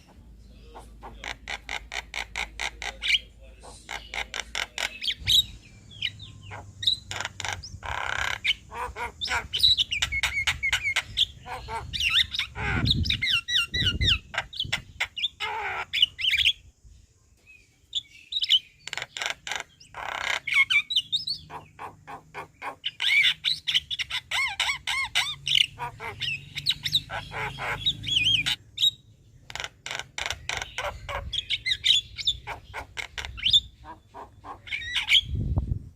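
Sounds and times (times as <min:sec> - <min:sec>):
myna chattering song: 0:32.3 - 0:35.3.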